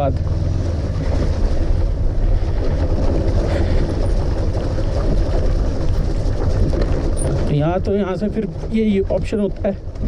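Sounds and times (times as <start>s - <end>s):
motorcycle engine drone: 0.0s - 10.0s
road noise: 0.0s - 10.0s.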